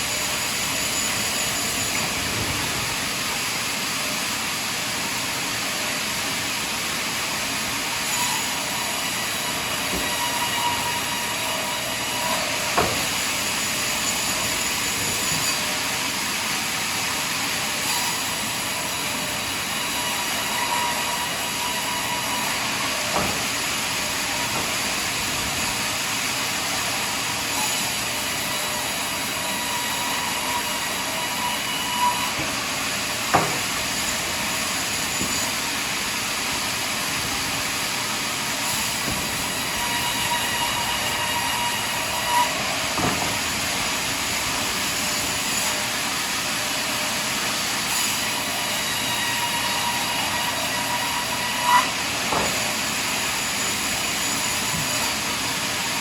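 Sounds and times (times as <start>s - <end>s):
sawmill sawing a log: 0.0s - 56.0s
sharp knocks: 33.3s - 33.7s.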